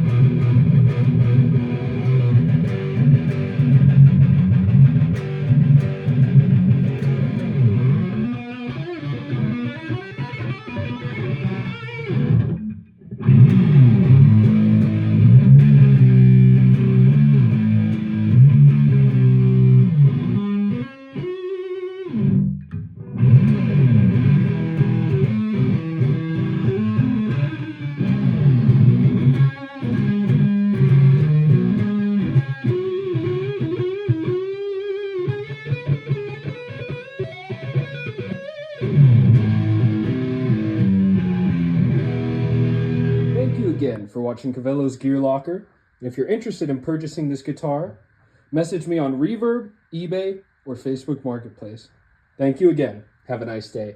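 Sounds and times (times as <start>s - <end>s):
electric guitar through amplifier: 0.0s - 53.9s.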